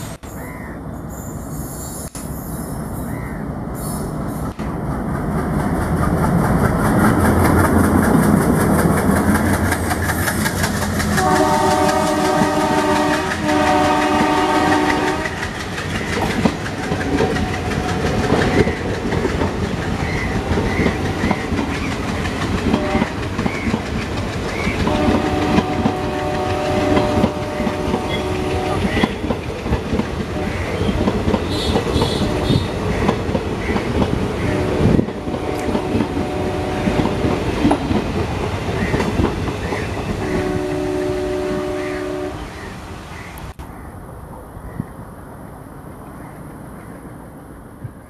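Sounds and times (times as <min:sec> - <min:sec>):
diesel locomotive engine rumble: 0:00.0 - 0:48.0
wheels clickety-clack over rail joints: 0:04.0 - 0:43.7
multi-tone train horn: 0:11.2 - 0:15.5, 0:22.6 - 0:23.3, 0:24.8 - 0:29.3, 0:30.3 - 0:32.9, 0:34.4 - 0:37.8, 0:40.1 - 0:42.6.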